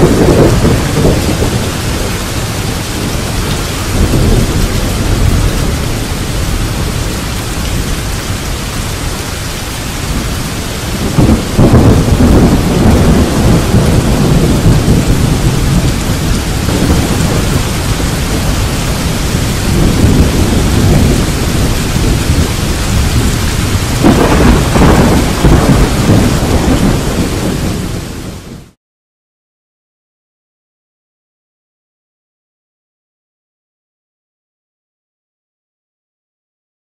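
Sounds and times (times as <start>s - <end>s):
rolling thunder: 0.0s - 28.8s
steady rain: 0.0s - 28.8s.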